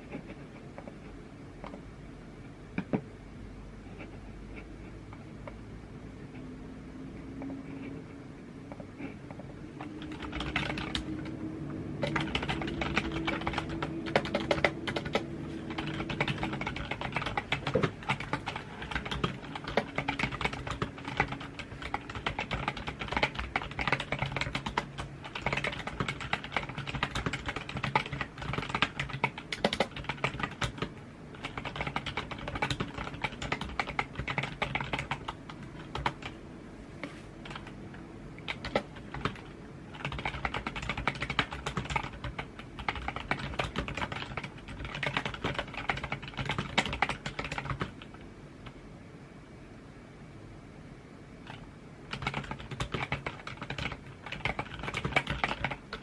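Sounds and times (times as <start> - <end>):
computer keyboard typing: 8.7 - 36.4, 37.4 - 37.8, 38.4 - 48.8, 51.4 - 56.0.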